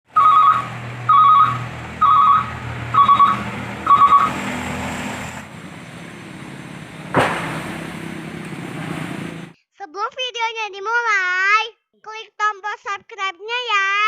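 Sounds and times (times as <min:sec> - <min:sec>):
truck reversing alarm beeping: 0:00.1 - 0:07.2
low engine hum: 0:00.1 - 0:09.6.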